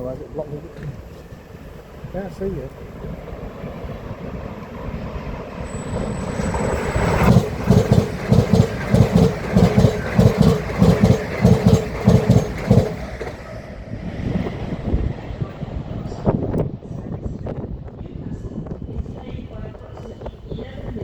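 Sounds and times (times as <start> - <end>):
train wheels clacking over rail joints: 6.4 - 13.6.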